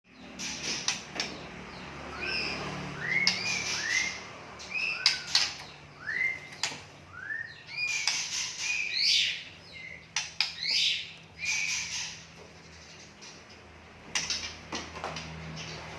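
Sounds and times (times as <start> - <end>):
bird singing whistled notes: 2.1 - 10.0.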